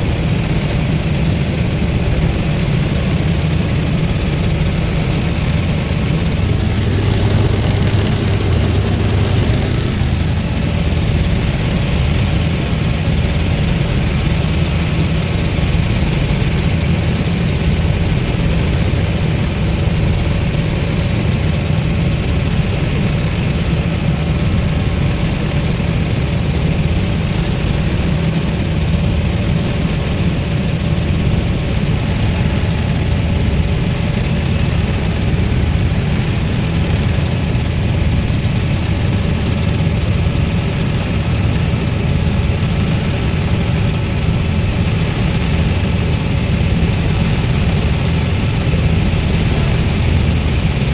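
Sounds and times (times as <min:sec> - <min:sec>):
helicopter engine and rotor drone: 0:00.0 - 0:50.9
high whine: 0:05.9 - 0:11.4.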